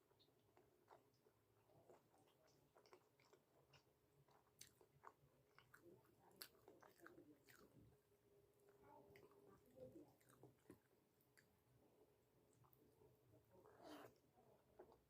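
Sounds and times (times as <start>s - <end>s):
person chewing: 0.2s - 7.8s, 8.6s - 11.5s.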